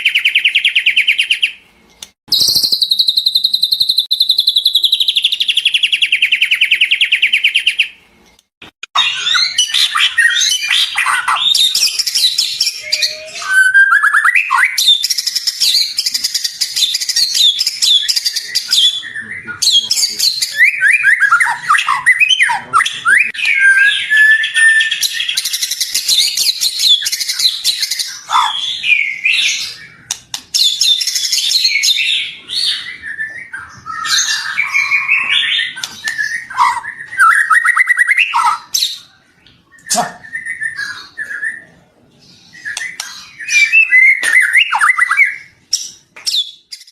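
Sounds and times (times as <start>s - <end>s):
songbird singing trills and whistles: 0.0s - 1.6s, 2.3s - 8.0s, 8.9s - 46.9s.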